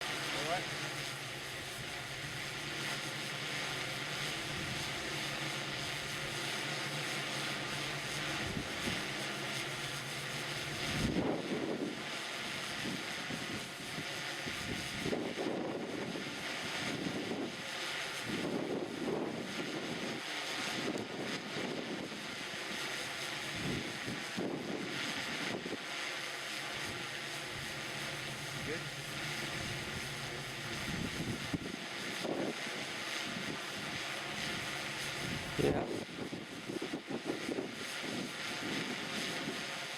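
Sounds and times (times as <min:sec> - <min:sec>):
drone propellers buzzing: 0:00.0 - 0:39.9
wind buffeting microphone: 0:08.4 - 0:09.2, 0:10.7 - 0:12.0, 0:23.4 - 0:25.8, 0:26.8 - 0:39.7.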